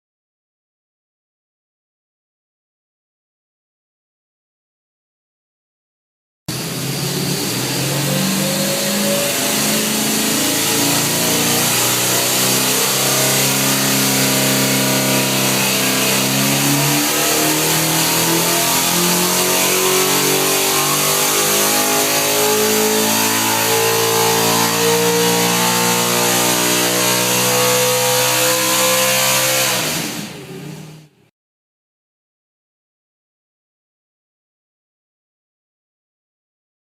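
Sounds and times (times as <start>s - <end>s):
race engine running hard: 6.5s - 31.1s.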